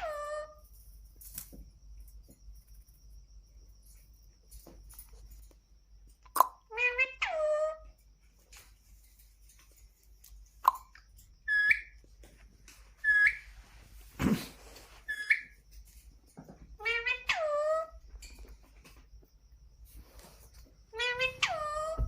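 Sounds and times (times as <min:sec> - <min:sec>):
parakeet whistled calls: 0:11.5 - 0:12.0, 0:13.0 - 0:13.5, 0:15.1 - 0:15.5.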